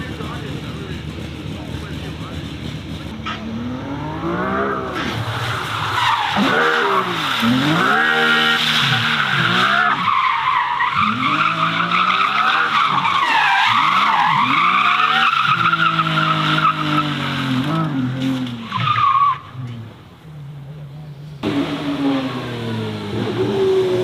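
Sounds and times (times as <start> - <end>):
car engine revving: 0.0 - 20.7, 21.4 - 24.0
tyres squealing: 5.0 - 19.8.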